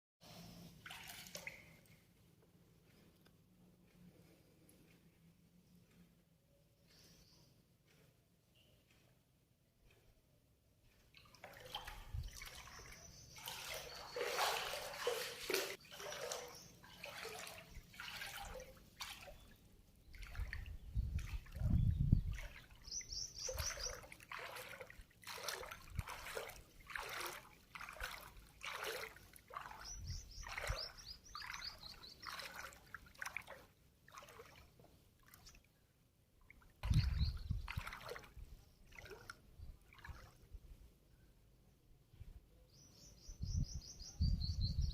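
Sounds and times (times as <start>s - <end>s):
water sloshing and splashing: 0.3s - 3.2s, 10.7s - 40.8s
bird chirps: 12.6s - 14.6s, 20.8s - 24.2s, 29.6s - 32.5s, 36.9s - 37.7s, 42.6s - 44.9s.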